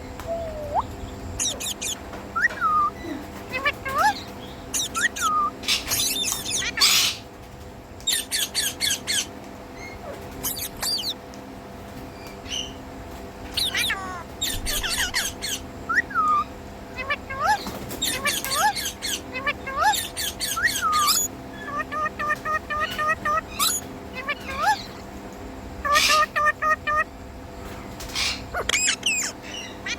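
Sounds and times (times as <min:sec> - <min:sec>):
low hum: 0:00.0 - 0:06.1
parakeet squawking: 0:00.2 - 0:07.2, 0:08.1 - 0:11.2, 0:13.5 - 0:25.1, 0:25.8 - 0:27.1, 0:28.1 - 0:29.9.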